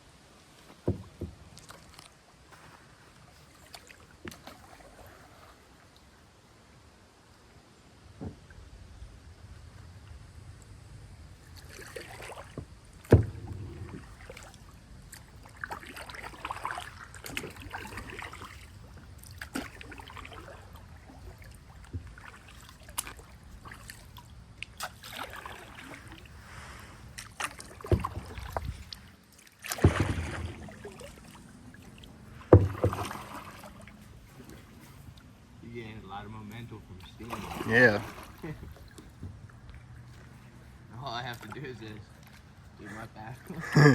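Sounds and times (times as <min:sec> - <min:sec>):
kayak paddle swishing in water: 0:00.0 - 0:06.4, 0:11.2 - 0:35.6, 0:36.4 - 0:43.9.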